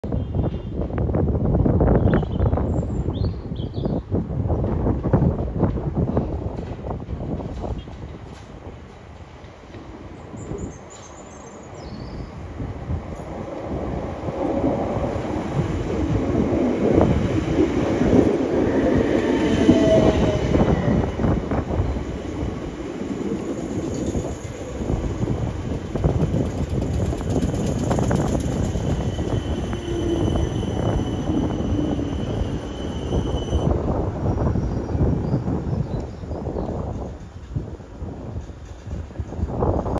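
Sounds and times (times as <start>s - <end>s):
train wheels rumbling on rail: 3.8s - 39.9s
high wheel squeals: 28.6s - 33.7s.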